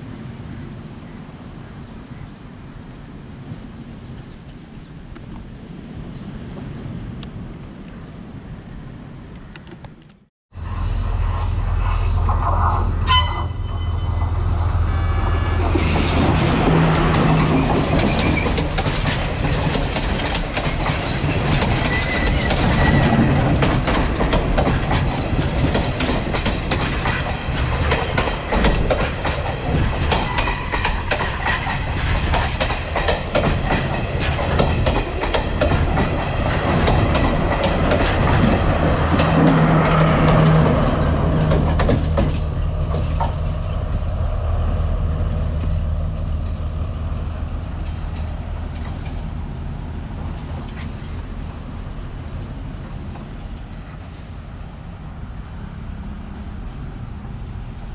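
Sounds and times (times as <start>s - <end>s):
train horn: 13.0s - 15.6s
train wheels clattering over rail joints: 15.6s - 44.0s, 47.6s - 49.4s.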